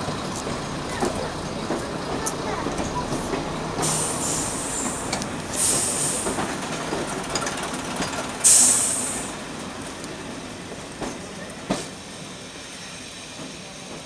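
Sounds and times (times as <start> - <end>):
train wheels rolling on rails: 0.0 - 14.0
hiss bursts: 3.8 - 6.9, 7.7 - 9.6.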